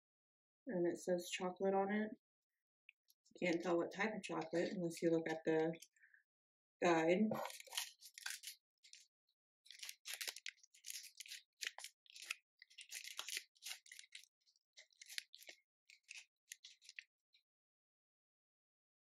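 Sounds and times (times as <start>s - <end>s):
snack packaging crinkling: 7.3s - 17.1s.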